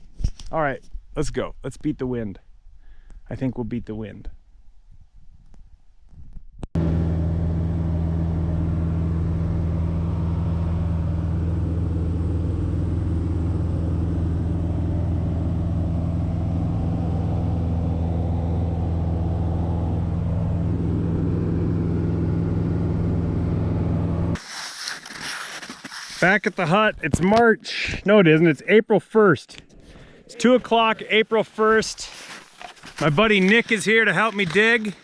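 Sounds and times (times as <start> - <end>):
small plane piston engine: 6.8 - 25.3.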